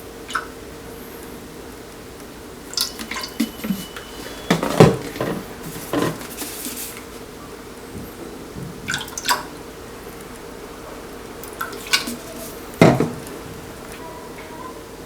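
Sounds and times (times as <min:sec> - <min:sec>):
liquid pouring and dripping: 0:02.6 - 0:06.7
utensils clinking against a bowl: 0:02.7 - 0:07.2, 0:11.4 - 0:14.7.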